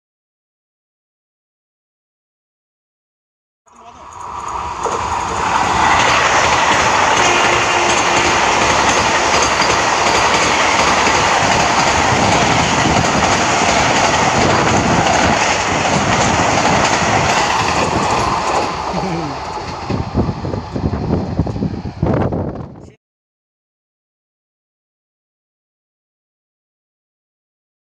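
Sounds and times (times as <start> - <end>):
train wheels rushing on rails: 3.8 - 22.7
clickety-clack of rail joints: 4.2 - 21.8.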